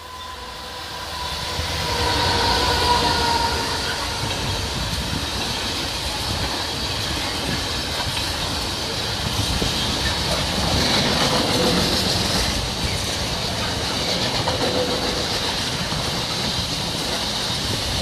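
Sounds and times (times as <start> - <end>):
high wheel squeal: 0.0 - 5.1
freight train rumbling past: 0.0 - 18.0
wheels clacking on rails: 1.6 - 18.0.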